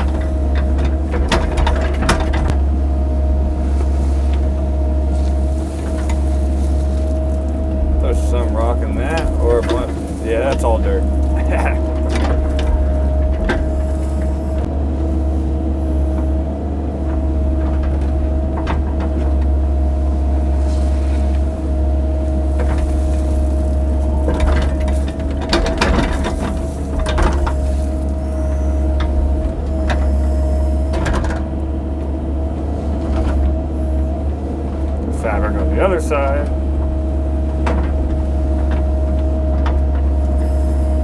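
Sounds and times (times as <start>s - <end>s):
excavator engine rumbling: 0.0s - 41.0s
bucket knocks and scrapes: 22.4s - 28.3s.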